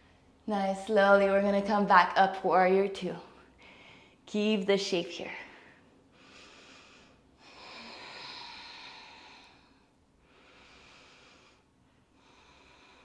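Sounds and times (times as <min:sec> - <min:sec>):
person breathing: 0:03.5 - 0:04.2, 0:05.4 - 0:13.0.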